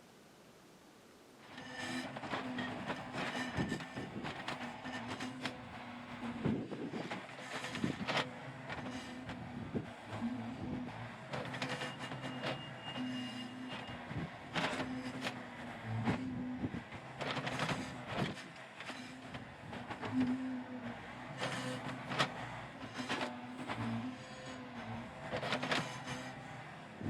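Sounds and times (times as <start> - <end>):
hydraulic whine: 1.5 - 8.1
excavator diesel engine running: 1.5 - 27.0.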